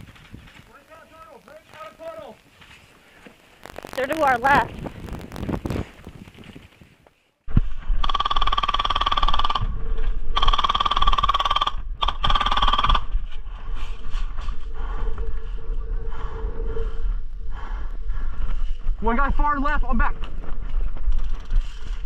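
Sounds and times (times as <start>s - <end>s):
wind rumbling on microphone: 0.0s - 1.0s, 3.6s - 22.0s
airsoft gun firing bursts: 8.0s - 9.6s, 10.4s - 13.1s.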